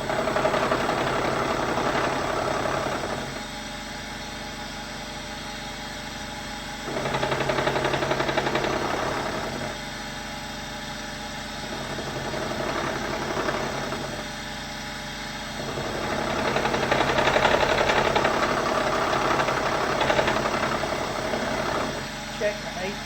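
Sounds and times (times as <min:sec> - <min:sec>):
milling machine cutting metal: 0:00.0 - 0:03.5, 0:06.8 - 0:09.8, 0:11.6 - 0:14.5, 0:15.5 - 0:23.0.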